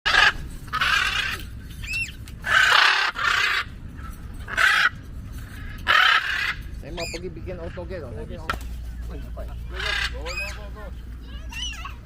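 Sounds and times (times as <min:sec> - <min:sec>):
parrot screeching: 0:00.1 - 0:03.7, 0:04.4 - 0:07.9, 0:09.7 - 0:10.7, 0:11.5 - 0:12.0.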